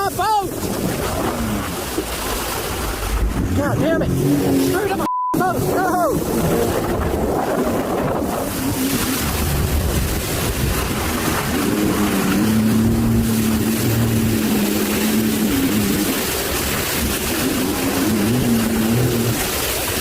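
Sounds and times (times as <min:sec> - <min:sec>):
motorboat engine humming: 0:00.0 - 0:20.0
water noise: 0:00.0 - 0:20.0
wind: 0:00.0 - 0:20.0.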